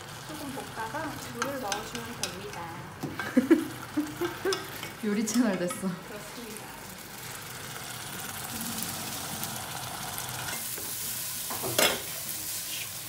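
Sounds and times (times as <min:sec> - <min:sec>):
food sizzling in a hot pan: 0:00.0 - 0:13.0
frying pan clatter: 0:00.9 - 0:05.9, 0:07.7 - 0:12.8.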